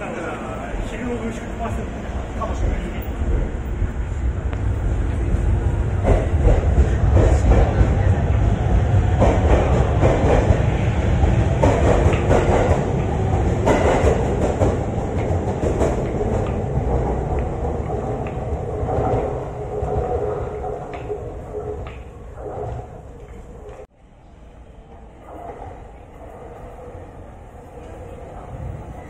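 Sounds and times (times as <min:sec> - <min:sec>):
electric train rumble: 0:00.0 - 0:29.0
wheels clacking over rail joints: 0:09.2 - 0:20.0.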